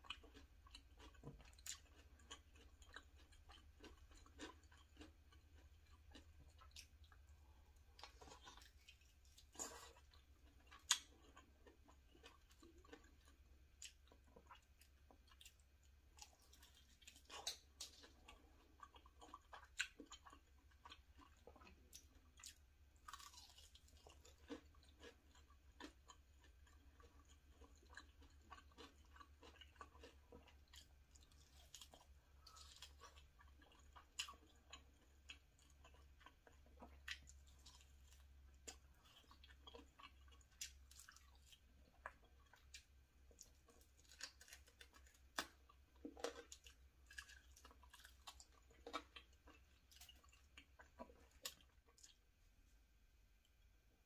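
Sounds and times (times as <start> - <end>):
wet chewing mouth sounds: 0.0 - 52.3.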